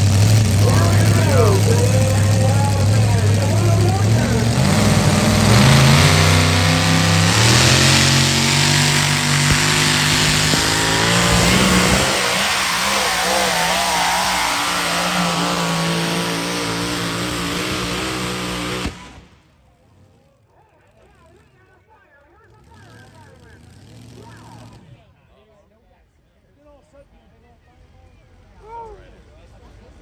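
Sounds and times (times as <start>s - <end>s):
truck engine revving under load: 0.0s - 19.4s.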